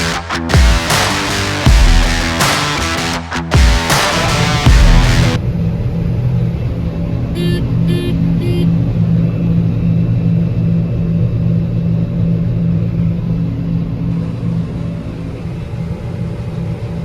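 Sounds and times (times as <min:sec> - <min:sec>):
electronic warning beeps: 0:07.4 - 0:08.8.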